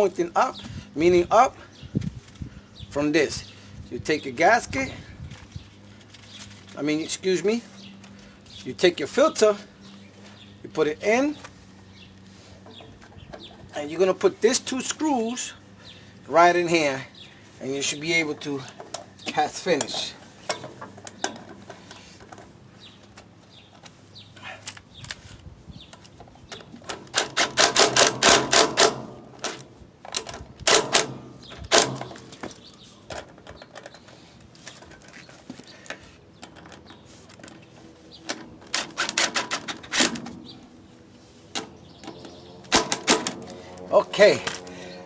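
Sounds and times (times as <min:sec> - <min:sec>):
handling clatter: 0:18.3 - 0:40.8, 0:41.5 - 0:44.9.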